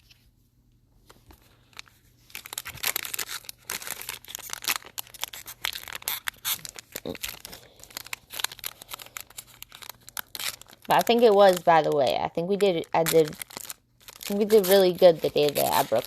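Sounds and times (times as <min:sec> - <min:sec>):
foil wrapper tearing and crinkling: 0:01.6 - 0:16.0.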